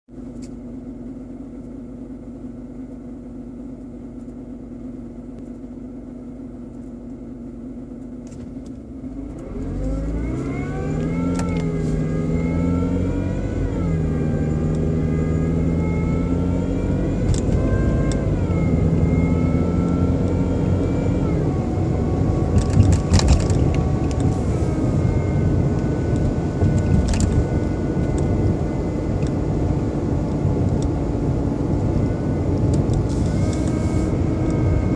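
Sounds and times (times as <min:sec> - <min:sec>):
engine whine: 0:00.1 - 0:34.9
car engine revving: 0:08.2 - 0:34.9.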